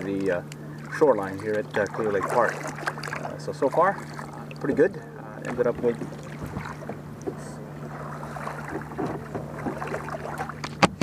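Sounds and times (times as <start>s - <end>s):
handling noises on kayak: 0.0s - 11.0s
steady low hum: 0.0s - 11.0s.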